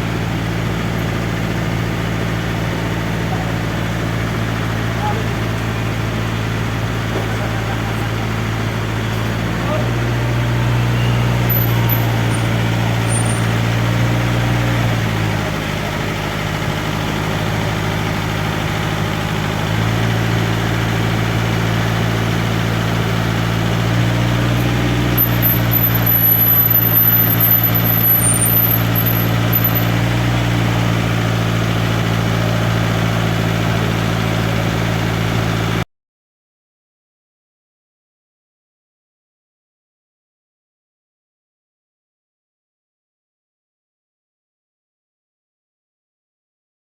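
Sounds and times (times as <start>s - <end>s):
diesel bus engine running: 0.0s - 35.8s.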